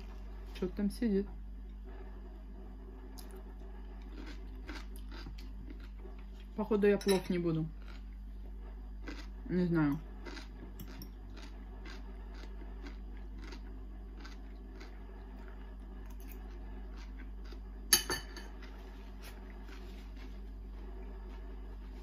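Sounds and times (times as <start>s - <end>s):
steady low hum: 0.0s - 22.0s
person chewing crunchy salad: 3.2s - 6.6s, 7.7s - 17.9s, 18.5s - 20.4s.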